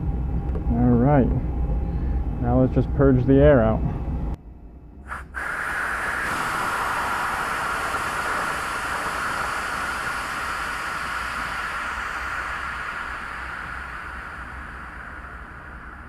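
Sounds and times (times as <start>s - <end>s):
air hissing from valve: 5.1s - 16.0s.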